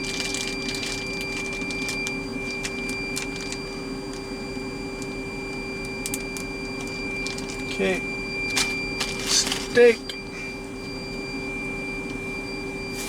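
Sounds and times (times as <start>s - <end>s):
plastic bag crinkling: 0.0s - 3.7s, 8.5s - 9.8s
machine hum with high whine: 0.0s - 13.0s.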